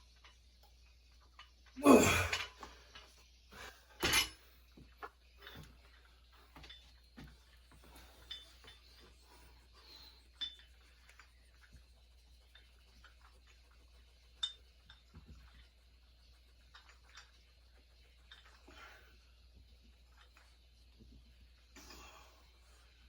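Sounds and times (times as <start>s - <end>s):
faint metallic clinks: 4.0s - 11.7s, 14.3s - 19.0s.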